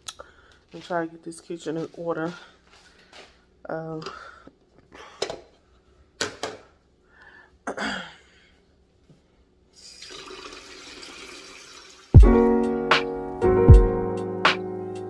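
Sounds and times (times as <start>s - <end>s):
tap water running into sink: 10.0s - 12.1s
music: 12.2s - 15.0s.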